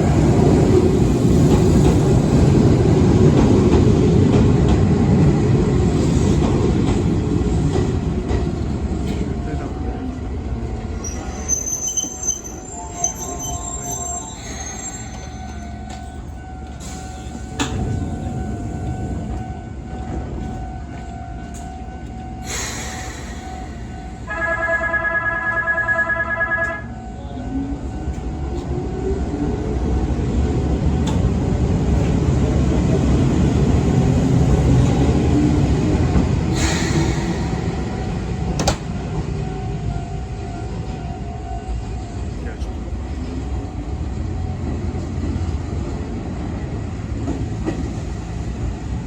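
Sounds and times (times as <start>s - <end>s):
train horn: 24.2s - 27.5s.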